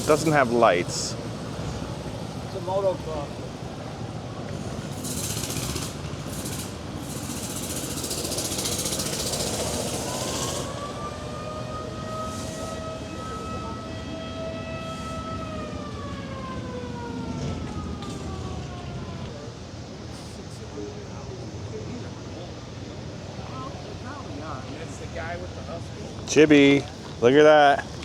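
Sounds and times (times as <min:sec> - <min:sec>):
rushing background noise: 0:00.0 - 0:28.0
siren wailing: 0:09.9 - 0:19.3.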